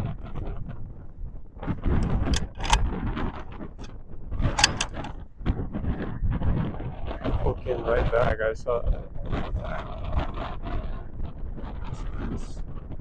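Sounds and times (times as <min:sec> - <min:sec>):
wind buffeting microphone: 0:00.0 - 0:13.0
rifle bolt clicking and sliding: 0:02.0 - 0:02.9, 0:04.5 - 0:05.2.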